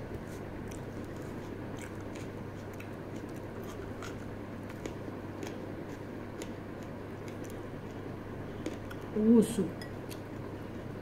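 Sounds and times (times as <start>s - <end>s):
steady low hum: 0.0s - 11.0s
chewing crunches and clicks: 0.6s - 5.6s, 6.4s - 8.0s.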